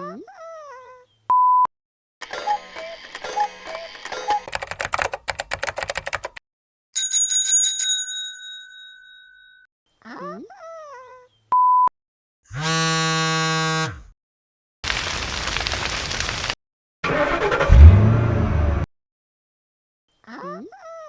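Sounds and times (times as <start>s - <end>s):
bell rung rapidly: 7.0s - 9.6s
loud buzzer: 12.5s - 14.1s.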